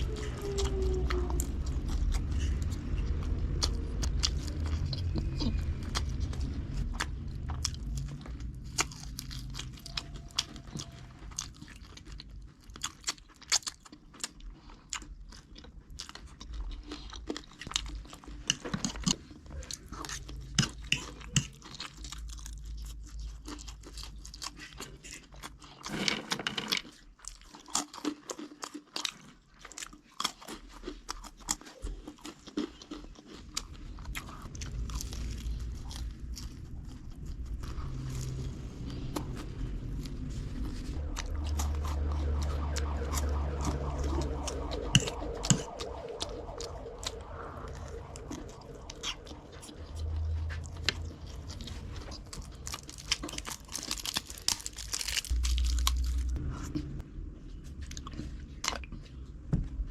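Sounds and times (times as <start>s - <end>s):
low rumble: 0.0s - 12.9s, 33.6s - 59.9s
person chewing crunchy food: 0.0s - 26.1s, 26.7s - 57.0s.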